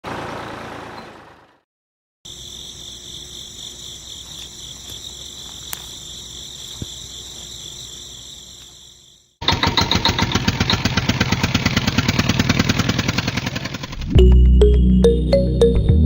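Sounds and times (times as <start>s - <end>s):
crickets chirring: 2.3s - 9.4s.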